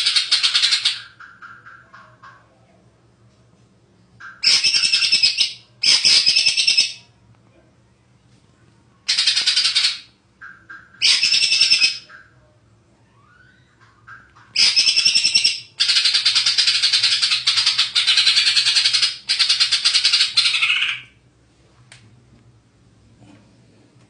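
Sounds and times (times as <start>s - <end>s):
bird chattering song: 0.0s - 2.0s, 4.2s - 7.1s, 9.1s - 12.4s, 14.1s - 21.2s.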